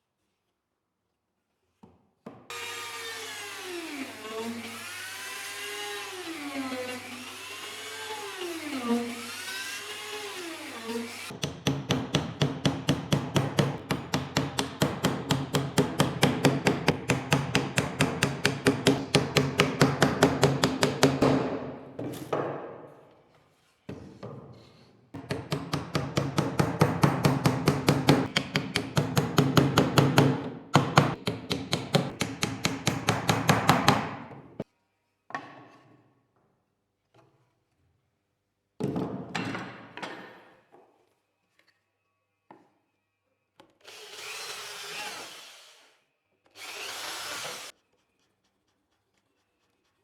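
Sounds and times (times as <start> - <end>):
hand tool working wood: 46.6 - 47.8.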